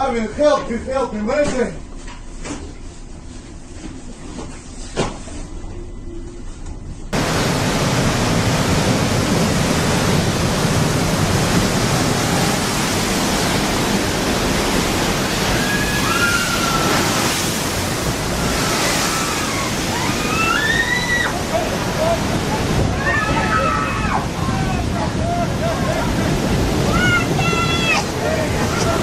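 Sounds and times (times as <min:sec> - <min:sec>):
waves breaking: 0:07.1 - 0:29.0
storm wind rushing: 0:07.2 - 0:29.0
faint high cries: 0:18.9 - 0:21.4.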